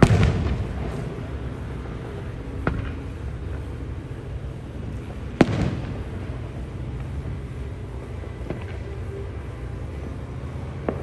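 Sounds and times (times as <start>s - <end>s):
firework shell bang: 0.0s - 0.7s
low background rumble: 0.0s - 11.0s.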